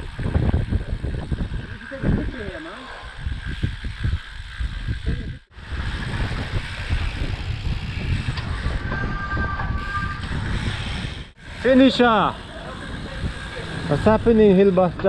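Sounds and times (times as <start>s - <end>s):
bicycle tyre and road noise: 0.0s - 15.0s
wind buffeting microphone: 0.0s - 15.0s
high-pitched squeal: 5.6s - 15.0s.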